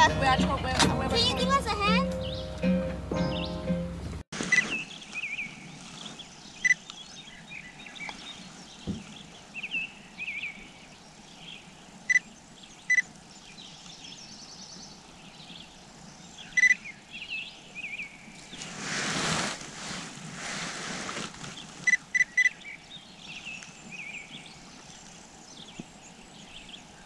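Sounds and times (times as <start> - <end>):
birds chirping: 0.0 - 18.6, 21.4 - 27.0
faint outdoor background: 0.0 - 27.0.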